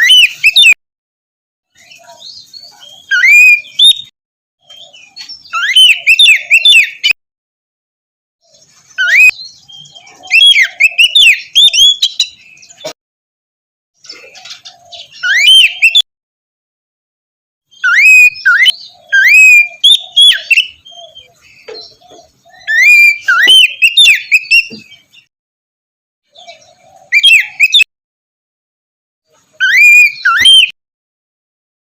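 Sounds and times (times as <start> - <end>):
bird singing whistles and chirps: 0.0 - 0.8, 1.7 - 7.2, 8.4 - 13.0, 14.1 - 16.0, 17.7 - 25.3, 26.3 - 27.9, 29.6 - 30.8.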